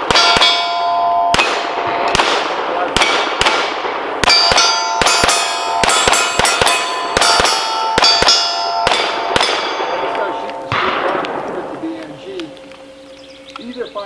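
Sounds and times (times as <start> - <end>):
bullets ringing steel plates: 0.0 - 3.6, 4.2 - 11.5
pistol shots: 0.0 - 12.2.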